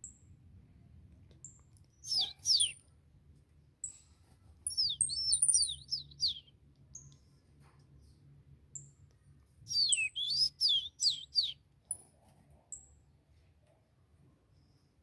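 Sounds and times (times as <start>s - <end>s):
songbirds chirping: 1.3s - 3.0s, 3.8s - 7.5s, 8.6s - 12.1s.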